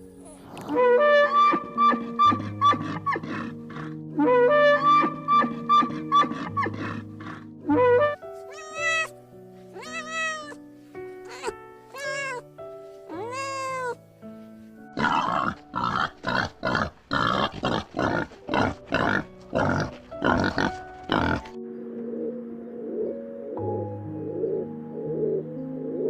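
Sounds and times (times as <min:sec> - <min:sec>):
background music: 0:00.0 - 0:26.0
drawn-out animal calls: 0:01.5 - 0:04.0, 0:05.0 - 0:07.5.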